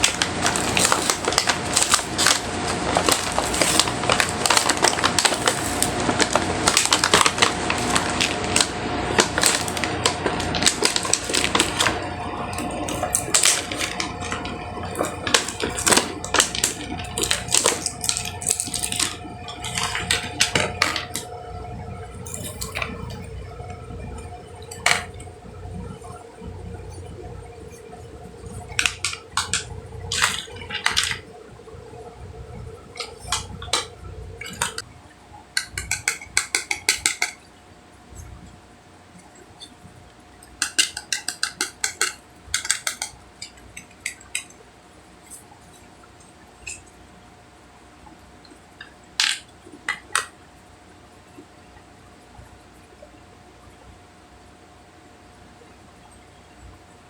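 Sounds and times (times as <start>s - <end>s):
packaging crinkling: 0.0s - 34.9s, 35.6s - 37.4s.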